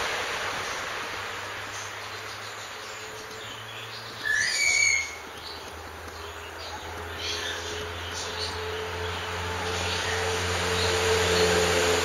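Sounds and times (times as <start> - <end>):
steady outdoor hiss: 0.0 - 12.0
high bird call: 4.2 - 5.3.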